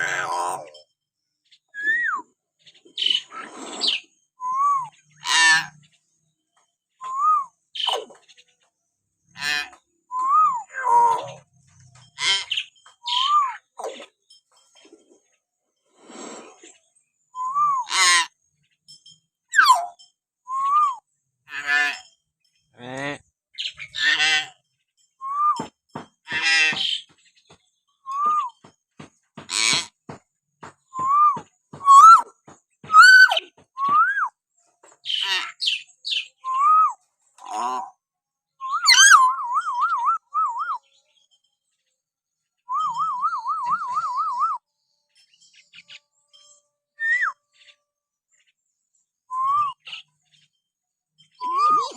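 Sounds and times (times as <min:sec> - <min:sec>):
harsh raspy bird croaks: 0:00.0 - 0:00.8, 0:05.1 - 0:05.9, 0:09.3 - 0:09.8, 0:21.5 - 0:22.2, 0:22.8 - 0:24.7, 0:25.6 - 0:27.1, 0:29.4 - 0:30.2, 0:37.4 - 0:38.0, 0:38.8 - 0:39.3
harsh rasping bird calls: 0:00.0 - 0:38.0, 0:38.6 - 0:41.3, 0:49.5 - 0:51.9
bird whistles: 0:01.7 - 0:02.3, 0:03.0 - 0:05.0, 0:07.0 - 0:08.1, 0:10.1 - 0:11.4, 0:17.3 - 0:18.0, 0:20.5 - 0:21.1, 0:25.2 - 0:25.8, 0:28.0 - 0:28.6, 0:30.9 - 0:32.3, 0:32.9 - 0:34.4, 0:35.6 - 0:37.0, 0:38.6 - 0:40.8, 0:42.6 - 0:44.6, 0:47.0 - 0:47.5, 0:49.3 - 0:50.0, 0:51.4 - 0:51.9.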